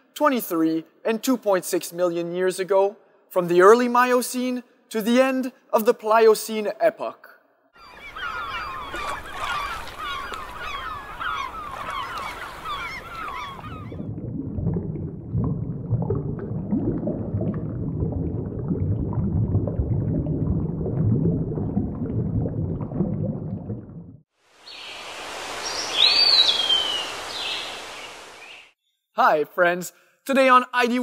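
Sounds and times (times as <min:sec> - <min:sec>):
seabirds calling: 0:07.8 - 0:14.0, 0:24.6 - 0:28.8
low underwater rumble: 0:13.7 - 0:24.2
sea hiss: 0:24.4 - 0:28.6.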